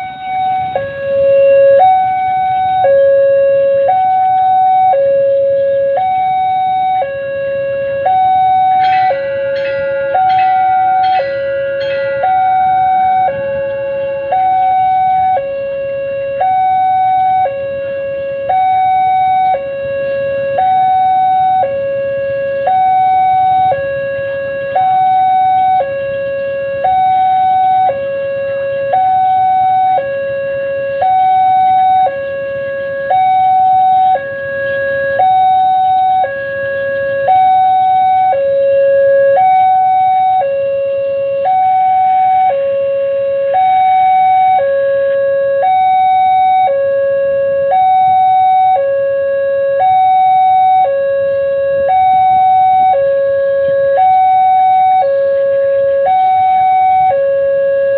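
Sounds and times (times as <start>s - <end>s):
level crossing alarm two tones: 0.0s - 17.5s, 33.1s - 45.0s, 45.6s - 46.9s, 49.4s - 50.9s.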